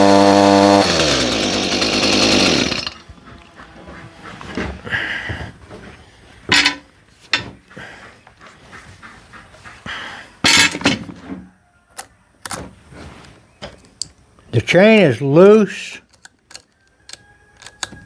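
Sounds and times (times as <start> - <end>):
handling knocks and clicks: 6.5 - 7.6, 10.5 - 11.3, 12.0 - 12.7, 16.1 - 18.0.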